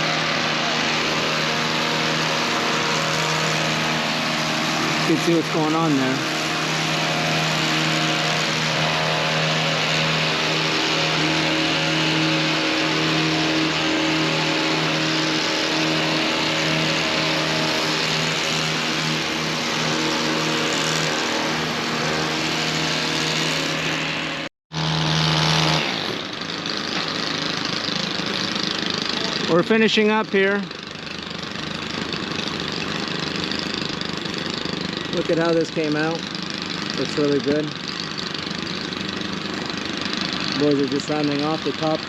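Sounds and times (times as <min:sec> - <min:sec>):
hedge trimmer engine running: 0:00.0 - 0:42.0.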